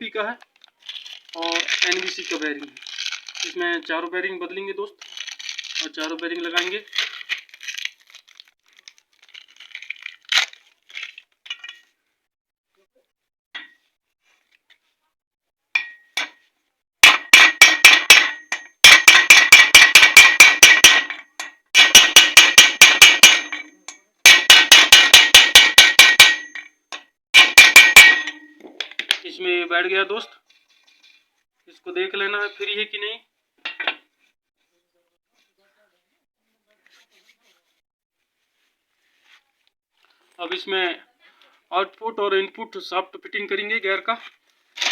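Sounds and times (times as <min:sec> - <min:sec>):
hammer tapping metal bearing: 0:17.0 - 0:26.6, 0:27.4 - 0:28.6.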